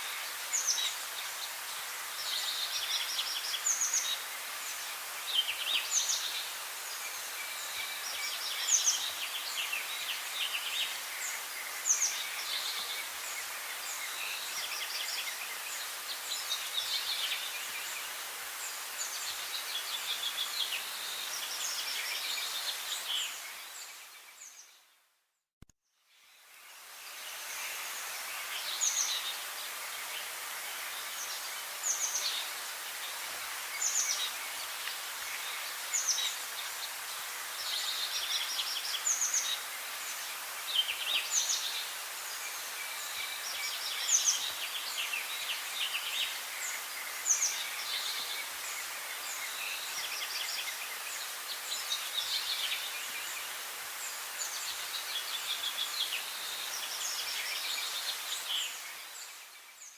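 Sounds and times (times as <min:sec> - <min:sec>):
steady background hiss: 0:00.0 - 0:24.8, 0:26.1 - 0:59.9
songbirds chirping: 0:00.0 - 0:25.1, 0:26.0 - 0:59.9.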